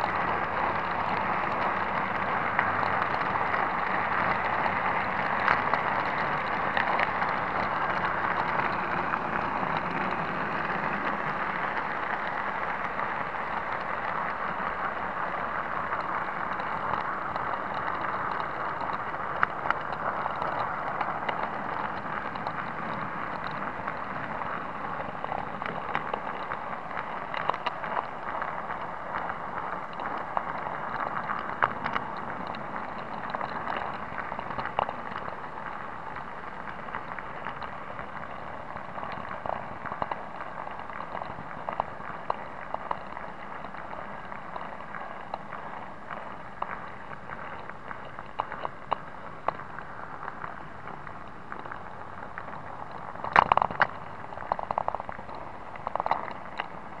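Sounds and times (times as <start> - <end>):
model train rattling on track: 0.0 - 39.0.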